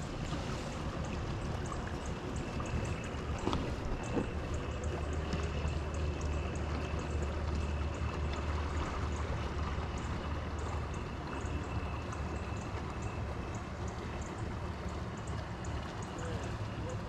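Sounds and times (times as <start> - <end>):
wind rumbling on microphone: 0.0 - 12.0
water lapping against kayak hull: 0.0 - 17.0.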